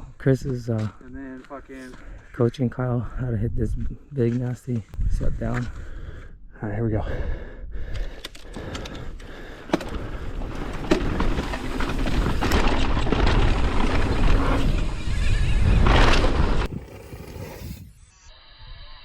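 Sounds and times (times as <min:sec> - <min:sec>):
wind buffeting microphone: 0:05.0 - 0:06.2
bike rattling and knocking: 0:09.3 - 0:15.0
tyres rumbling over dirt: 0:09.5 - 0:17.6.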